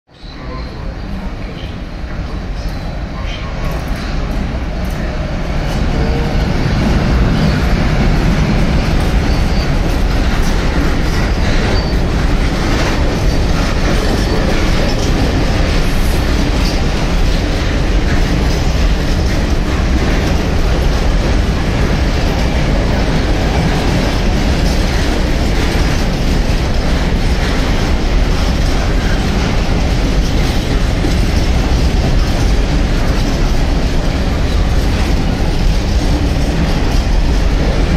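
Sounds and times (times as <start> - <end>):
train wheels rumbling on rails: 0.1 - 37.9.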